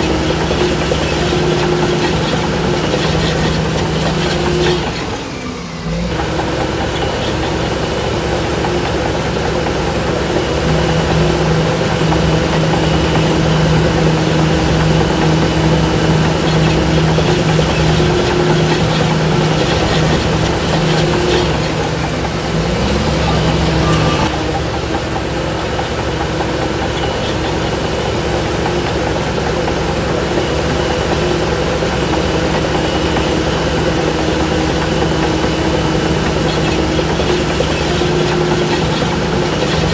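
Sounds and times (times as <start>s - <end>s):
bulldozer diesel engine running: 0.0s - 39.9s
mechanical clatter: 8.5s - 39.9s.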